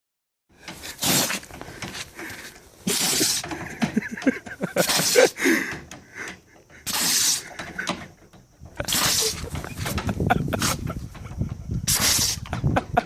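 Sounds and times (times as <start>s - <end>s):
dog sneezing: 1.0s - 1.4s, 2.9s - 3.5s, 6.9s - 7.5s, 8.8s - 9.4s.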